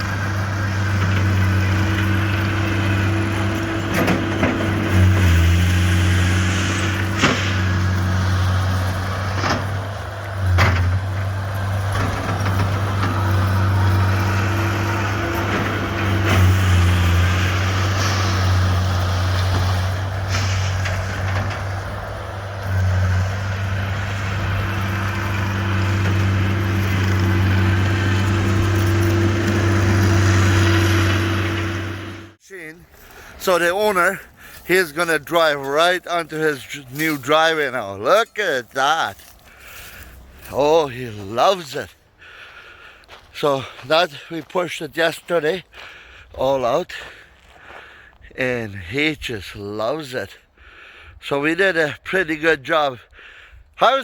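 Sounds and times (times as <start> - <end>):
skid steer engine running: 0.0 - 38.2.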